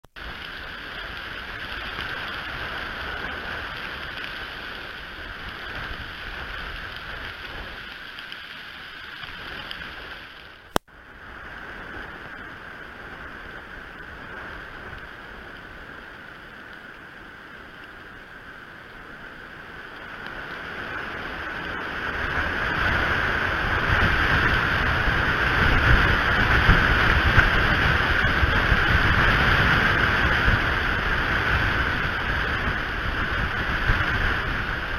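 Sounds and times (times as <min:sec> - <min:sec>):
wind on microphone: 0:18.7 - 0:34.9.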